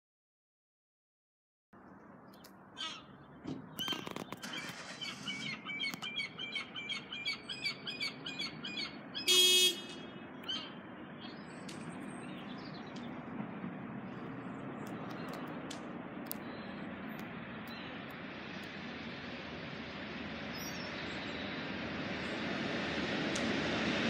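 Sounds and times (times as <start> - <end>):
birds chirping: 2.0 - 18.8, 19.8 - 22.6
loud harsh bird call: 2.8 - 10.8.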